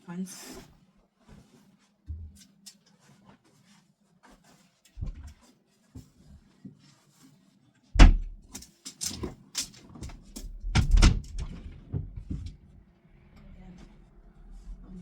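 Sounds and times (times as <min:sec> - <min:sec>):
clothes and furniture handled: 0:00.3 - 0:12.8
heavy thump: 0:08.0 - 0:08.4.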